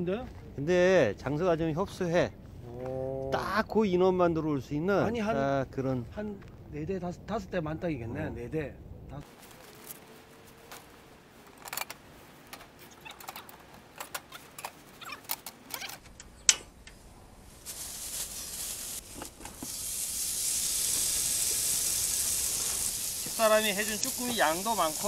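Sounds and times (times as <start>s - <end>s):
food sizzling on grill pan: 17.6s - 25.0s.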